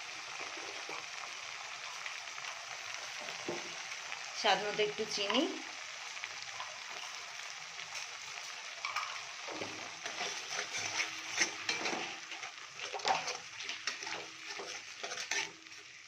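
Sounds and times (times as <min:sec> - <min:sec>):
spices sizzling in hot oil: 0:00.0 - 0:16.0
utensil scraping a pan: 0:08.8 - 0:16.0.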